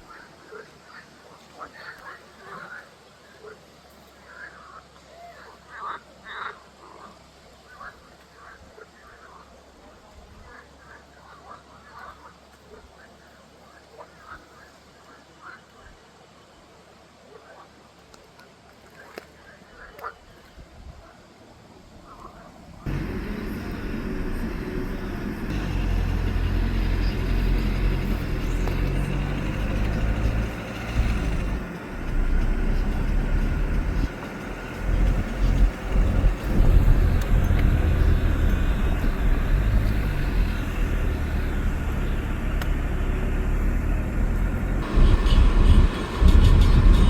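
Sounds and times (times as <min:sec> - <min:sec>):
vehicle engine running: 0:22.8 - 0:47.0.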